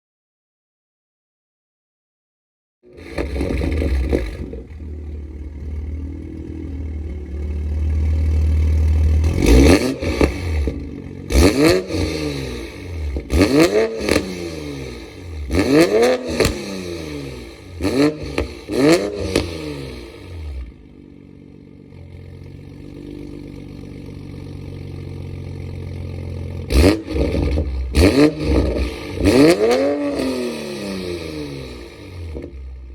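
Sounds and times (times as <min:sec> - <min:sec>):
car engine revving with cracks: 0:02.9 - 0:32.9
car engine idling: 0:03.0 - 0:29.2.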